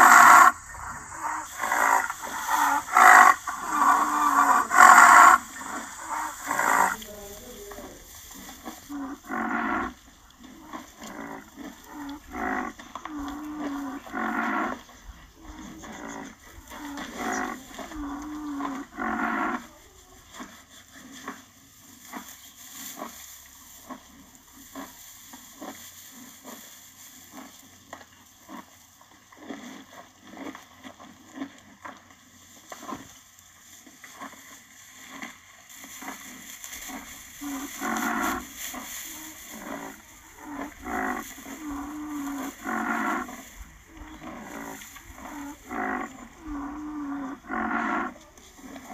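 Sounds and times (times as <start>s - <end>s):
rhinoceros calling: 0.0s - 21.4s, 34.1s - 48.9s.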